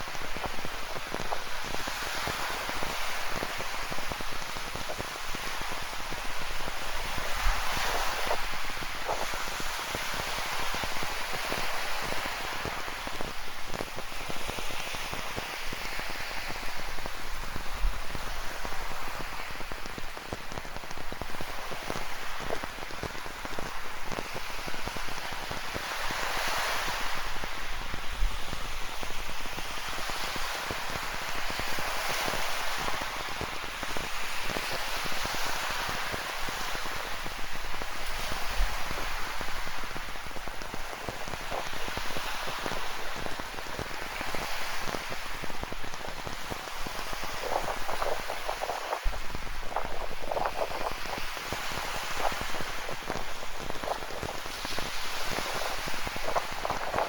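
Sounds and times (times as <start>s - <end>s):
ocean waves washing in: 0.0s - 57.0s.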